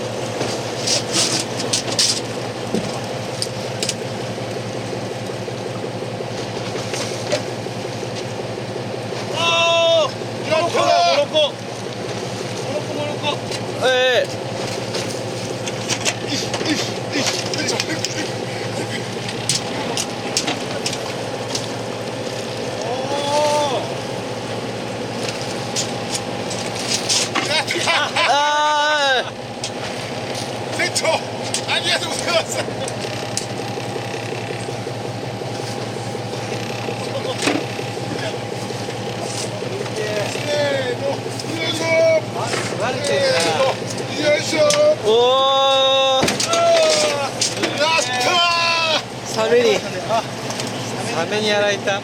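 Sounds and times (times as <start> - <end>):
boat engine idling: 0.0 - 52.0.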